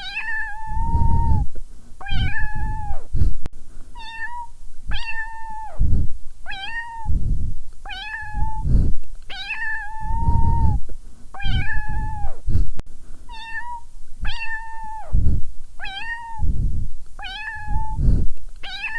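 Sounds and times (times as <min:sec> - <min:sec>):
kitten meowing: 0:00.0 - 0:01.4, 0:02.0 - 0:03.0, 0:04.0 - 0:05.8, 0:06.5 - 0:07.1, 0:07.9 - 0:08.7, 0:09.3 - 0:10.8, 0:11.4 - 0:12.4, 0:13.3 - 0:15.2, 0:15.8 - 0:16.5, 0:17.2 - 0:18.0, 0:18.6 - 0:18.9
dull low thumps and rumbles: 0:05.8 - 0:06.2, 0:07.1 - 0:07.7, 0:08.3 - 0:09.0, 0:10.1 - 0:12.8, 0:15.0 - 0:15.6, 0:16.4 - 0:17.0, 0:17.7 - 0:18.4.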